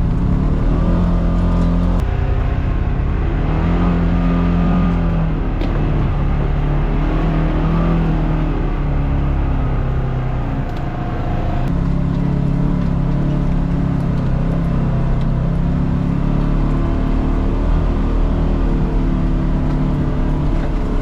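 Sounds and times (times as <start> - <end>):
off-road vehicle engine humming: 0.0 - 21.0.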